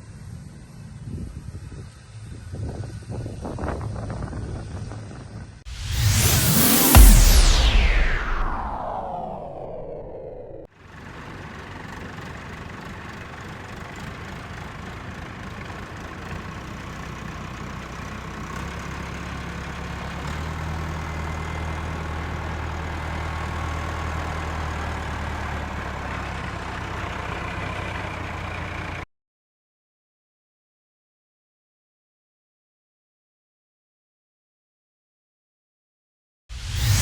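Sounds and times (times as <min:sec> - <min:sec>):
tractor engine running: 0:10.8 - 0:29.0.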